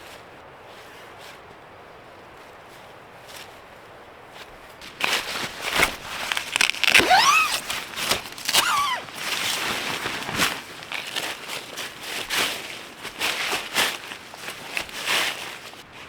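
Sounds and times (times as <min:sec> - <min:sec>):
rustling and crunching: 0:04.3 - 0:16.0
short rising squeaks: 0:06.9 - 0:07.7, 0:08.5 - 0:09.1.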